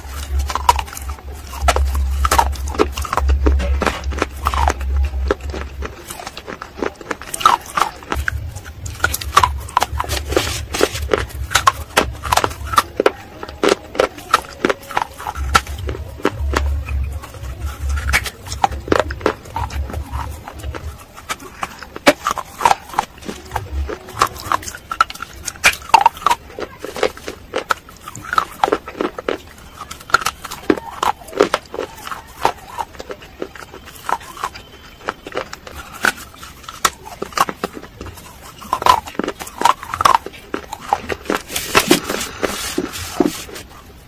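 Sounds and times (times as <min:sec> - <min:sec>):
crunching and chewing clay: 0:00.0 - 0:44.0
noisy rustle: 0:41.0 - 0:44.0.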